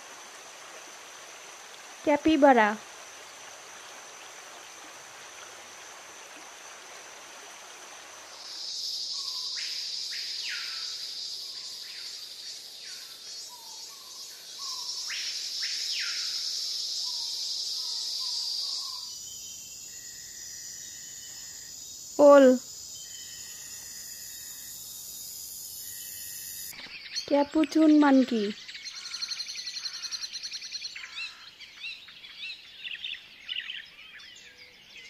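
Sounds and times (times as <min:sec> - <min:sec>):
high-pitched insect chorus: 0:02.8 - 0:27.8, 0:28.6 - 0:31.4.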